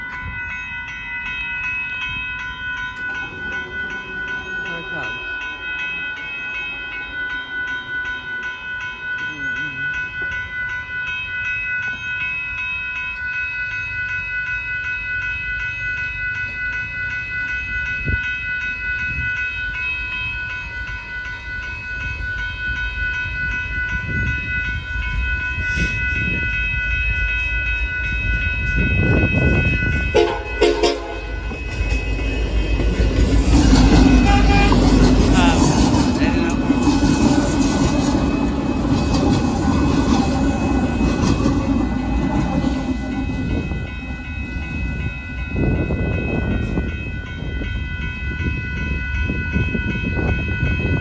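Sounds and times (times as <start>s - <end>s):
steady high ringing tone: 0.0s - 51.0s
diesel locomotive rumble: 20.4s - 51.0s
train horn: 30.1s - 31.5s, 33.8s - 36.8s.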